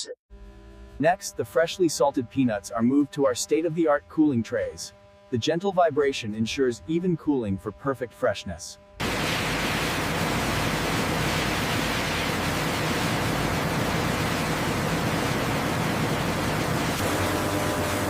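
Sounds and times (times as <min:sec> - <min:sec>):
loud machinery hiss: 0:09.0 - 0:18.0.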